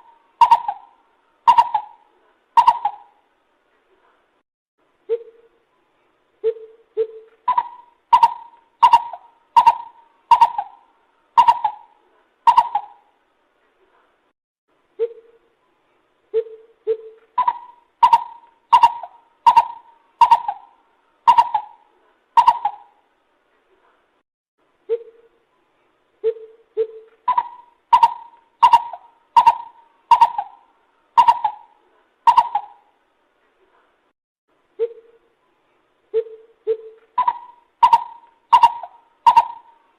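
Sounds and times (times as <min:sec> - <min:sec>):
coucal calling: 0:00.0 - 0:03.2, 0:06.4 - 0:13.1, 0:16.4 - 0:23.0, 0:26.2 - 0:33.0, 0:36.1 - 0:39.9.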